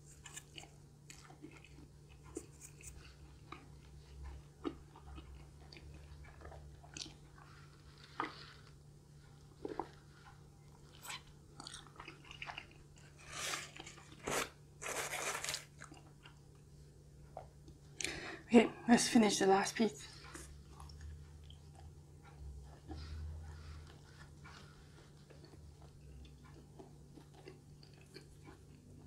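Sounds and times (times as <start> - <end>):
person chewing and swallowing: 0.0 - 14.4, 15.6 - 18.3, 20.1 - 29.0
cardboard box rustle and scrape: 14.2 - 15.6.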